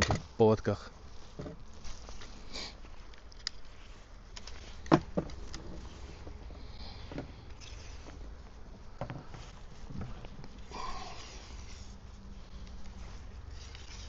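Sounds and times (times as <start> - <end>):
steady low rumble: 3.7 - 14.0.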